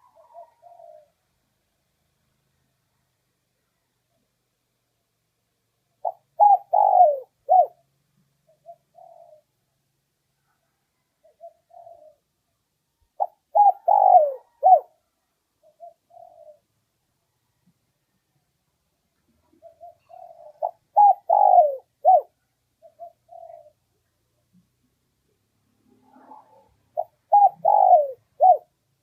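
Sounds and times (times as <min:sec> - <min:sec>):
dove cooing: 0:00.0 - 0:01.2, 0:06.0 - 0:09.6, 0:11.2 - 0:12.3, 0:13.2 - 0:16.7, 0:19.5 - 0:23.9, 0:26.0 - 0:28.8.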